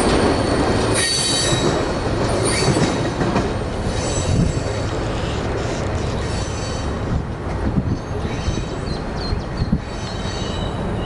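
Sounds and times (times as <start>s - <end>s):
train knocks: 0.0s - 8.8s
train wheels rumbling on rail: 0.0s - 11.0s
high wheel squeals: 3.8s - 7.0s, 9.8s - 11.0s.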